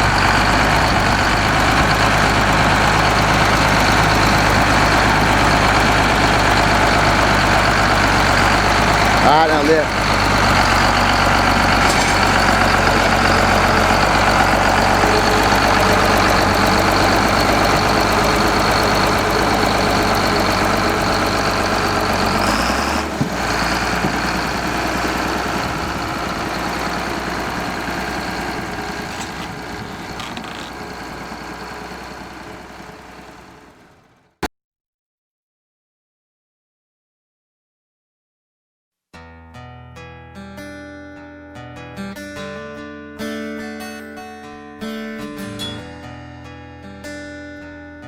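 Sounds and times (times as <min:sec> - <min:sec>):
engine running: 0:00.0 - 0:34.4.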